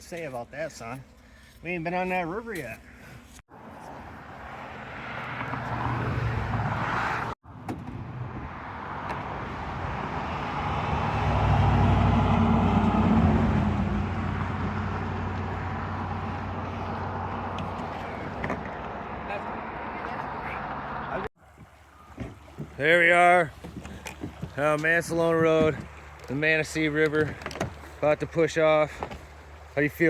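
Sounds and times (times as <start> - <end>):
tyre and road noise: 0.0 - 30.0
vehicle engine hum: 2.8 - 22.8.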